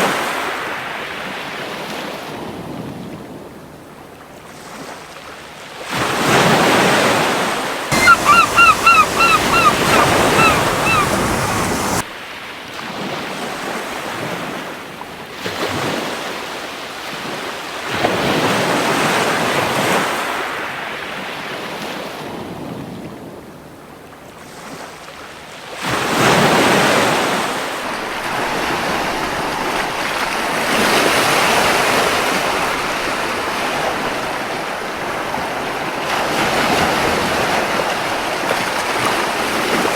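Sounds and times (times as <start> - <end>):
gull calling: 7.9 - 12.0
ocean waves washing on beach: 7.9 - 12.0
wind on shore: 7.9 - 12.0, 26.0 - 39.9.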